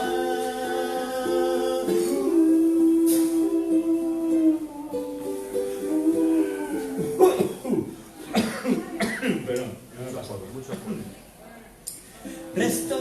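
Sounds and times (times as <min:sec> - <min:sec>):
plucked ukulele: 0:00.0 - 0:07.5
man singing long notes: 0:00.0 - 0:07.6.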